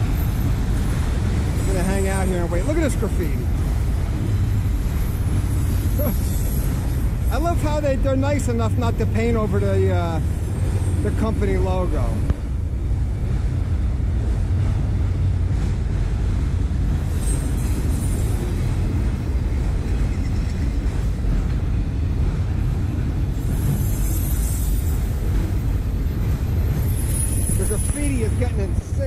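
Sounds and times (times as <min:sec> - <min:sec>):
freight cars rumbling on rails: 0:00.0 - 0:29.0.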